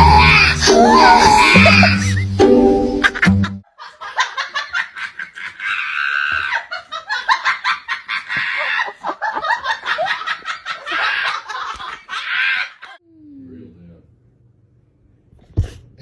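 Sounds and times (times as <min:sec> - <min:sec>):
person laughing high-pitched: 0:00.0 - 0:03.6.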